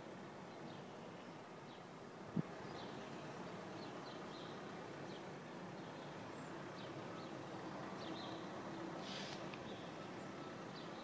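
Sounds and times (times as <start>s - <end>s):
brief hiss: 9.0s - 9.8s.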